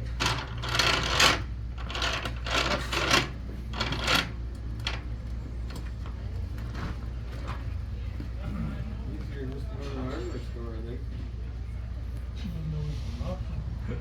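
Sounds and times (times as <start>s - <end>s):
rope-making machine gears rattling: 0.0s - 6.2s.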